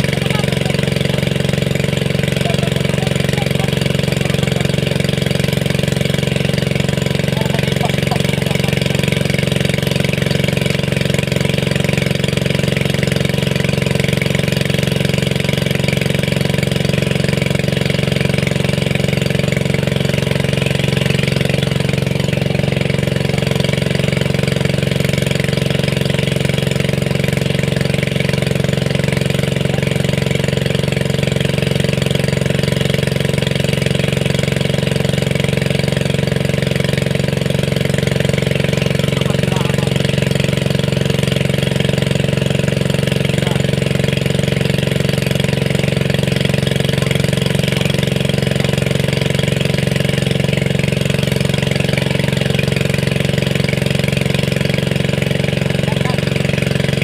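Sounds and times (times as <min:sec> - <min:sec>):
small engine running steadily: 0:00.0 - 0:57.0.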